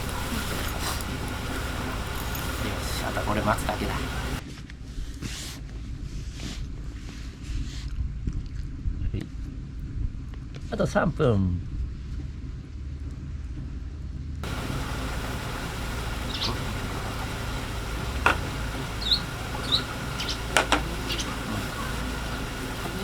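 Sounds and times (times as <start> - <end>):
bird chirps: 0.0 - 4.4, 14.4 - 23.0
steady low rumble: 0.0 - 4.4, 14.4 - 23.0
wood fire snapping: 14.4 - 23.0.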